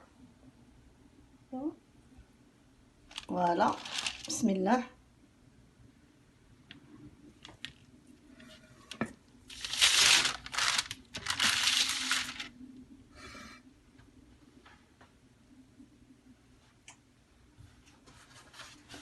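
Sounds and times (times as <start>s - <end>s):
rustling scraping noise: 3.1s - 4.5s, 8.3s - 12.5s.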